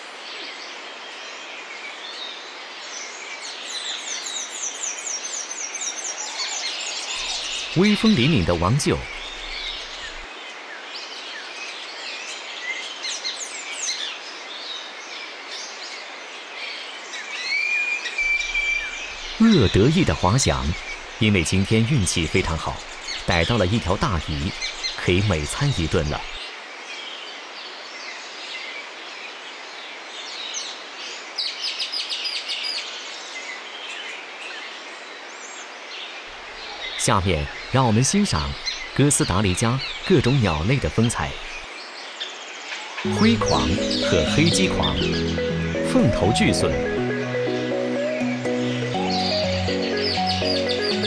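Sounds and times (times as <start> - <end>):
small birds chirping: 7.1 - 10.3, 18.2 - 26.4, 36.4 - 41.7, 48.2 - 51.0
background hiss: 7.2 - 10.3, 18.2 - 26.4, 36.3 - 41.8
held high note: 18.2 - 21.3, 43.1 - 51.0.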